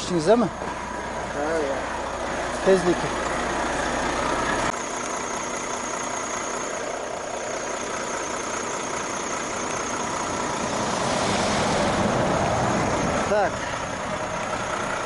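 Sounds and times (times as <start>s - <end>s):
truck engine idling: 0.0s - 15.0s
even rushing noise: 9.9s - 14.5s.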